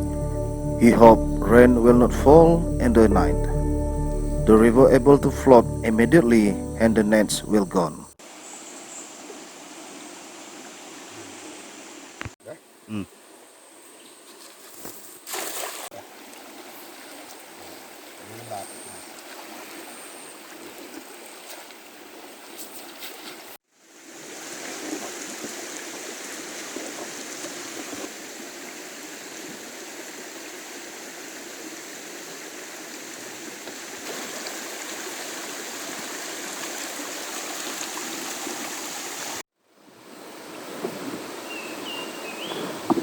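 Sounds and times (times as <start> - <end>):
river water rushing: 34.1 - 39.4.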